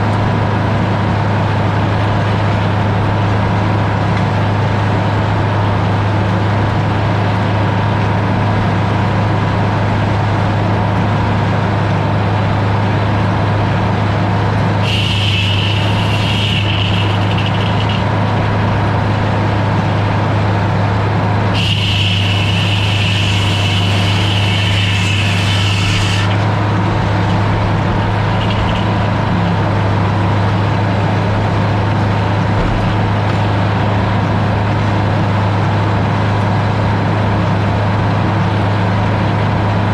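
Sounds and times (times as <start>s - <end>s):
heavy engine running: 0.0s - 39.9s
high hissing whine: 13.9s - 34.7s.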